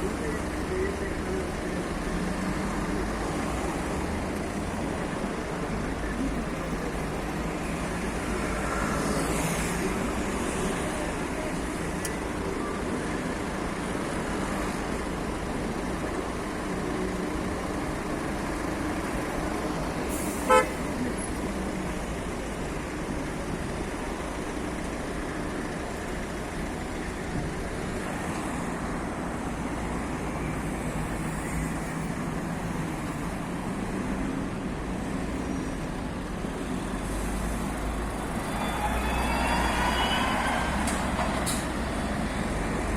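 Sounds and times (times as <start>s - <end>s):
buses passing: 0.0s - 42.9s
city road traffic: 0.0s - 42.9s
vehicle horn toot: 20.5s - 20.8s.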